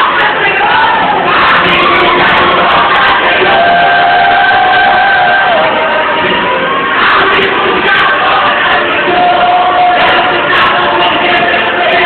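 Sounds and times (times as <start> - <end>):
crowd cheering and shouting: 0.0 - 12.0
music: 0.0 - 12.0.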